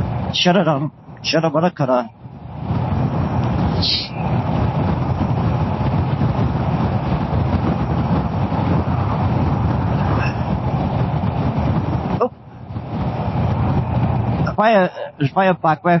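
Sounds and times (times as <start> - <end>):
wind and road noise: 0.0 - 16.0
motorcycle engine running: 2.2 - 14.5.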